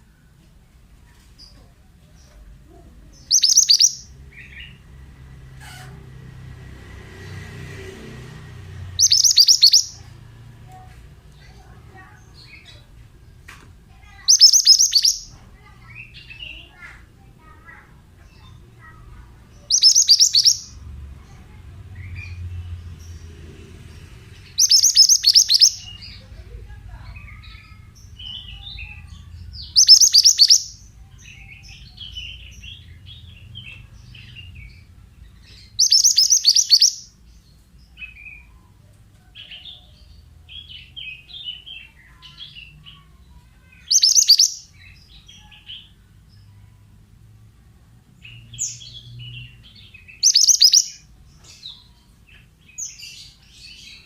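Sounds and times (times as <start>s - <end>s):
bird song phrase: 1.1s - 5.4s, 7.3s - 46.8s, 47.7s - 54.0s
soft bird chirps: 1.4s - 4.8s, 9.0s - 10.8s, 13.9s - 23.3s, 23.9s - 38.7s, 39.3s - 46.8s, 48.2s - 54.0s
faint low hum: 8.7s - 44.0s.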